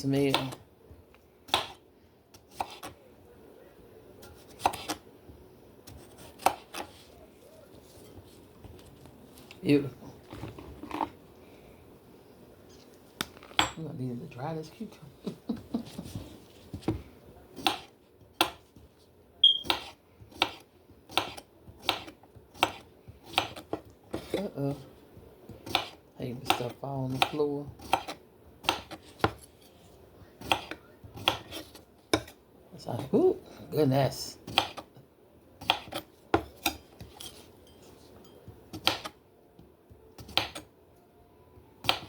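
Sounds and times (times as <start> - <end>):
knife cutting on cutting board: 2.4 - 3.0, 4.2 - 5.0, 5.9 - 7.2
knife slicing cucumber: 2.4 - 3.0, 4.2 - 5.0, 5.9 - 7.1, 19.5 - 24.4, 25.6 - 29.5, 35.6 - 36.7.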